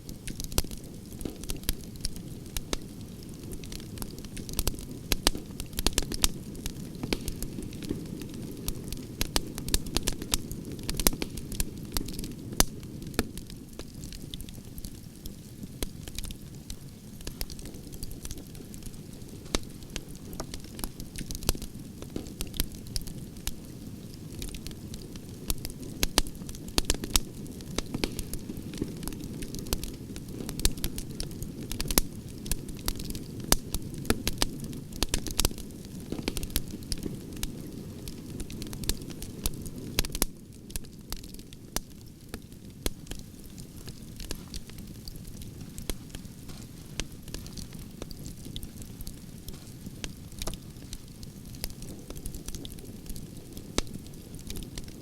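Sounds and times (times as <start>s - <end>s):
campfire crackling: 0.0s - 55.0s
low rumble of flames: 0.0s - 55.0s
sharp pops and snaps: 4.0s - 7.9s, 17.2s - 23.1s, 25.6s - 31.0s, 40.0s - 53.2s.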